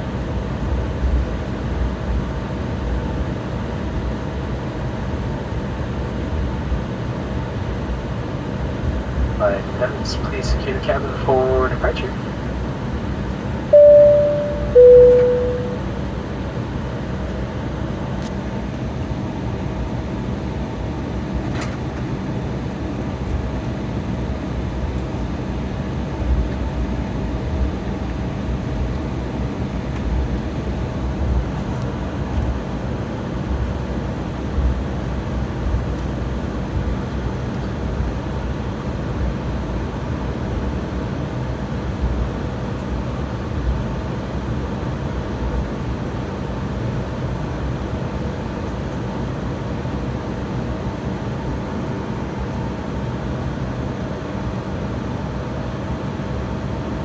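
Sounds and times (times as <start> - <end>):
jet cabin rumble: 9.5 - 12.5
two-tone cabin chime: 13.7 - 15.9.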